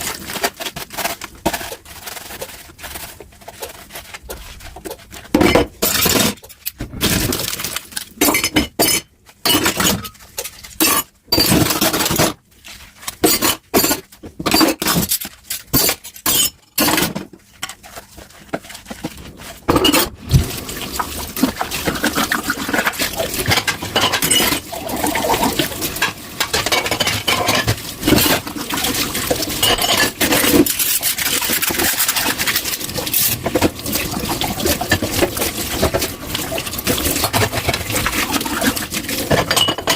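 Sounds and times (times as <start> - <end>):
tap water running: 18.2 - 39.9
dishes and glasses clinking: 23.4 - 24.6, 29.6 - 30.3, 39.3 - 39.9.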